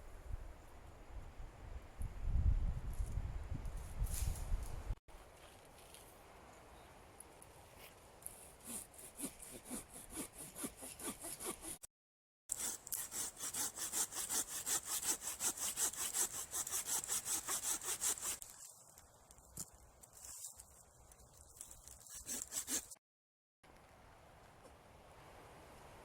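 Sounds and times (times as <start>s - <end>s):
hand saw cutting wood: 8.5s - 11.9s, 12.5s - 18.4s, 21.9s - 23.0s.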